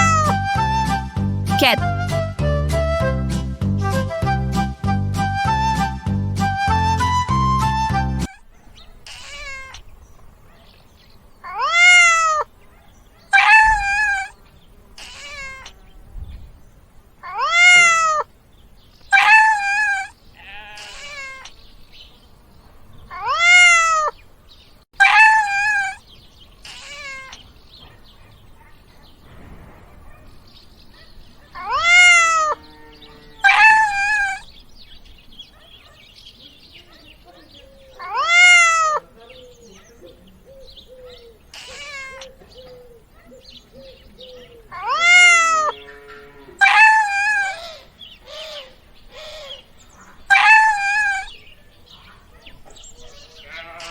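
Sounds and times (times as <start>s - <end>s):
cat meowing: 9.0s - 9.8s, 11.4s - 12.5s, 13.3s - 14.3s, 15.0s - 15.8s, 17.2s - 18.3s, 19.1s - 21.5s, 23.1s - 24.1s, 26.7s - 27.4s, 31.6s - 32.6s, 33.4s - 34.4s, 38.0s - 39.1s, 41.6s - 42.4s, 44.7s - 45.8s, 50.3s - 51.3s.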